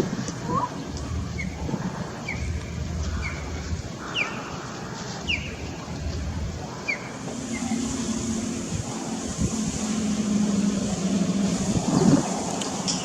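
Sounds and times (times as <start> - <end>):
bird chirping: 2.2 - 4.5
low rumble: 5.3 - 13.0.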